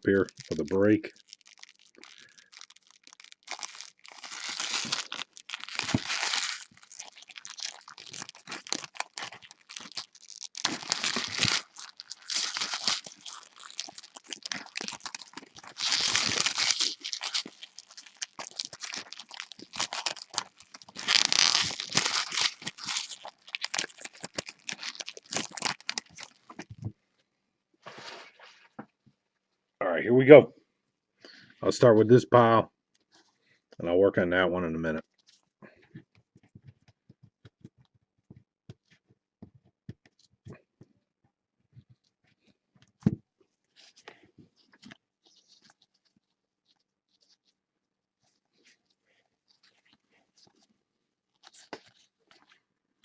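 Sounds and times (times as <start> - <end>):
wrapper tearing: 0.0 - 26.7, 51.4 - 52.6
wrappers crinkling and rustling: 0.0 - 26.9, 43.6 - 47.6, 48.2 - 50.7, 51.3 - 52.7.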